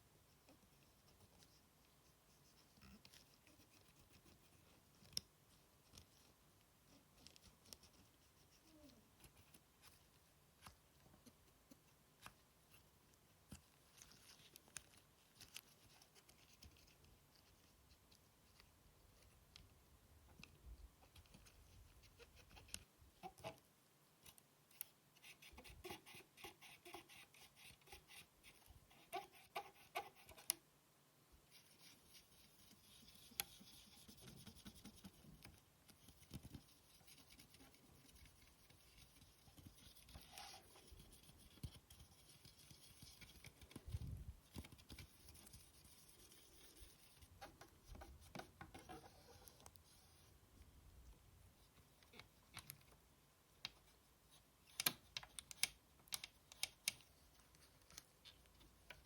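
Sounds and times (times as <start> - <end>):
scratchy rubbing: 31.5 - 50.4.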